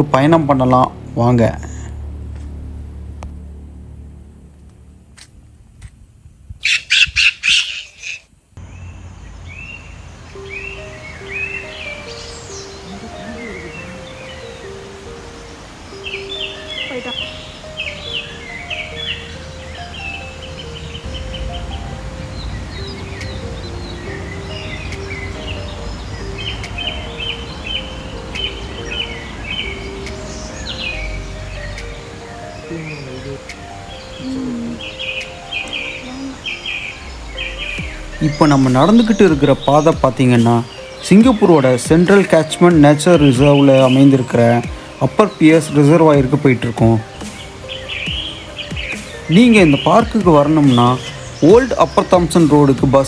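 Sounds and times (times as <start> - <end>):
soft background music: 0.0 - 5.4, 8.6 - 53.0
low steady rumble: 0.0 - 6.6, 19.2 - 34.8
bird rough calls: 6.6 - 8.3
bird chirps: 6.6 - 53.0.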